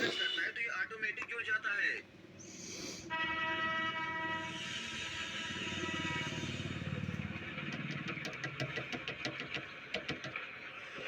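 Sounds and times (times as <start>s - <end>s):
train horn: 3.1s - 6.9s.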